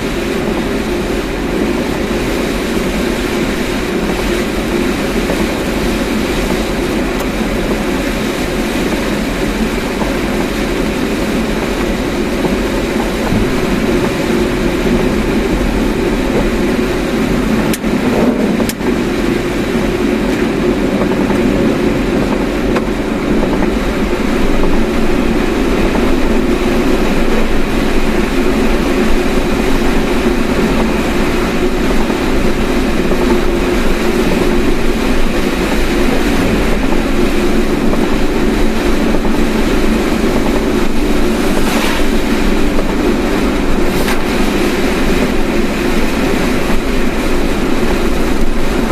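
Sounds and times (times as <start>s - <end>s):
car engine and road rumble: 0.0s - 48.9s.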